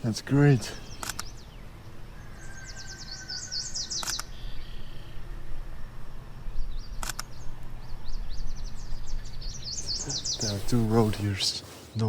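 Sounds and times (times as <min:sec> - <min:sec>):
songbird singing: 0:00.0 - 0:12.0
sharp click: 0:01.0 - 0:01.3, 0:04.0 - 0:04.3, 0:07.0 - 0:07.3.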